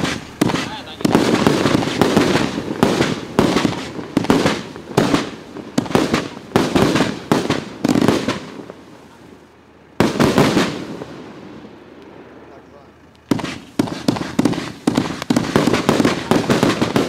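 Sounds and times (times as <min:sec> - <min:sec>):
firework cake bangs: 0:00.0 - 0:08.8, 0:10.0 - 0:11.1, 0:13.3 - 0:17.0.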